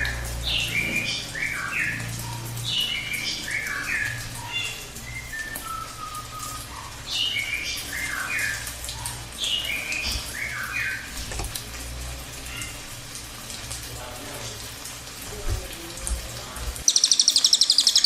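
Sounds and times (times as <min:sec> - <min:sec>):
bird chirping: 0:16.8 - 0:18.0.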